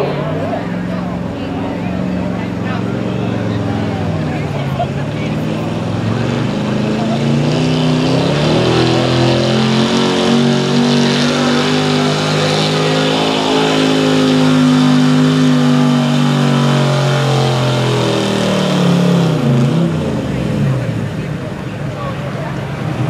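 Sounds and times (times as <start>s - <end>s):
truck engine at full throttle: 0.0s - 23.0s.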